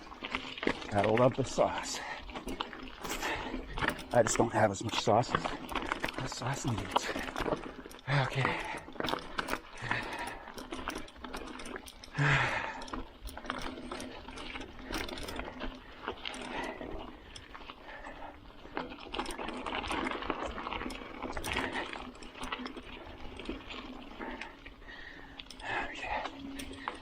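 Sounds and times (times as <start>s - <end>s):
bicycle clattering over rough trail: 0.0s - 27.0s
bicycle jolt: 0.2s - 27.0s.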